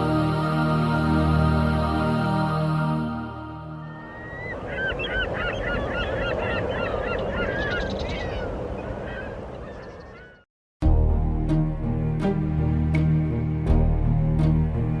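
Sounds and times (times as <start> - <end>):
soundtrack music: 0.0 - 4.1, 10.8 - 15.0
flock of birds calling: 3.8 - 10.4.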